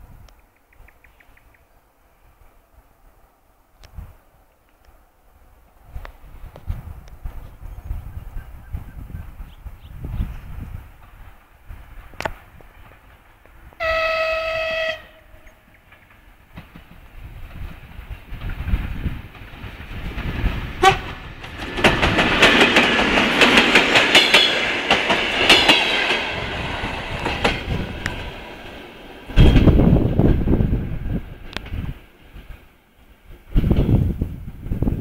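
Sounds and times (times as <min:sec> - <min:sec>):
train passing: 0:00.9 - 0:35.0
wheels clicking over rail joints: 0:11.0 - 0:34.2
locomotive horn blast: 0:13.8 - 0:15.4, 0:20.8 - 0:21.2.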